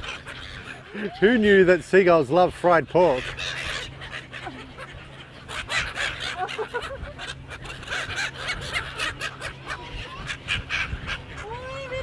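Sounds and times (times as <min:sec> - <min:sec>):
seagulls calling and squabbling: 0:00.0 - 0:12.0
people laughing: 0:06.1 - 0:07.5.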